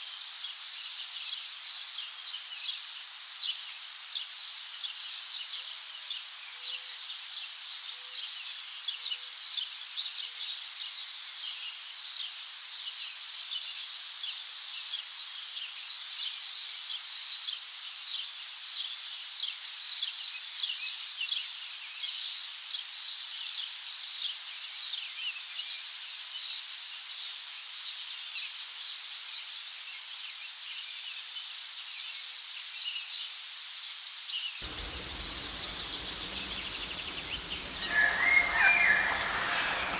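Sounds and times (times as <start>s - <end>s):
small birds chirping: 34.6s - 39.9s.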